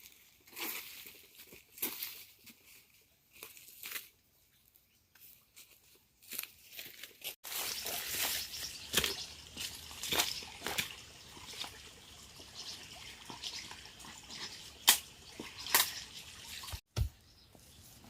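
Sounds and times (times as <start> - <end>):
dry plant material rustling: 5.2 - 11.8.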